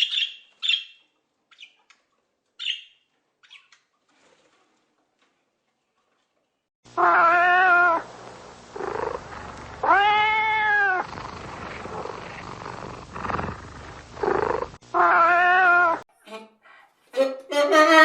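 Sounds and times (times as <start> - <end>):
cat meowing: 7.0 - 8.0, 9.8 - 11.1, 14.9 - 16.0.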